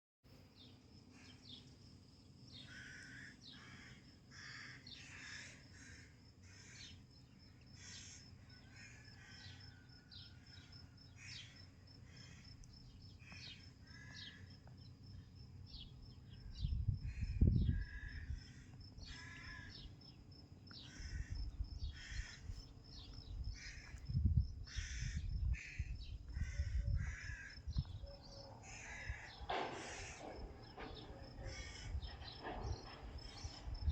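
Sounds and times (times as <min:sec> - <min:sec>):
birds chirping: 0:10.6 - 0:33.9.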